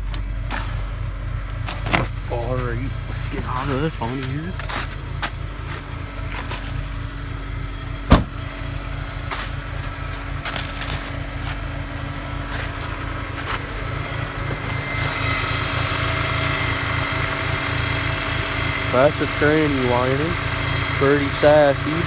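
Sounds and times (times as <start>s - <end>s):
car engine running: 0.0s - 22.0s
transmission whine: 0.0s - 22.0s
sharp engine knock: 8.1s - 8.5s.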